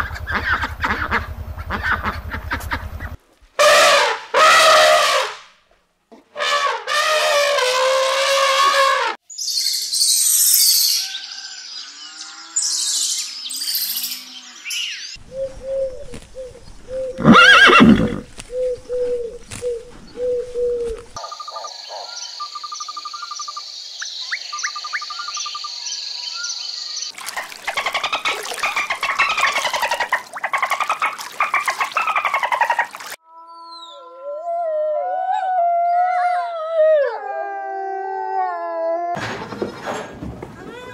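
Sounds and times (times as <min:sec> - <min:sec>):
loud animal cry: 0:17.2 - 0:18.2
rapid animal calls: 0:27.3 - 0:33.2.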